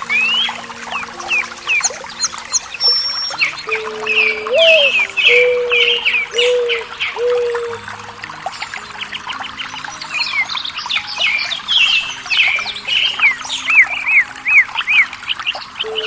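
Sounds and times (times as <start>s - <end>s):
bird call with falling notes: 0.0s - 7.8s
birds chirping: 0.0s - 16.0s
trickling water: 0.0s - 16.0s.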